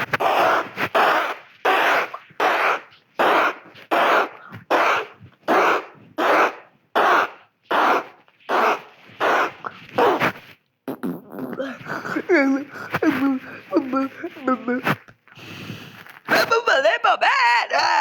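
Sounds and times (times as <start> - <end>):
child coughing: 1.9 - 8.0.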